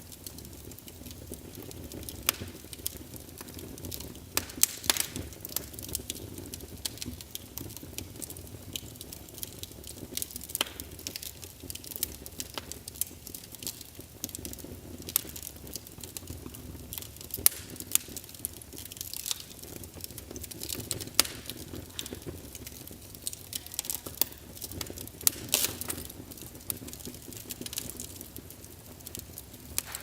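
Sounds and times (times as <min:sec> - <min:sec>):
logs crackling and popping: 0:00.0 - 0:30.0
low rumble of flames: 0:00.0 - 0:30.0.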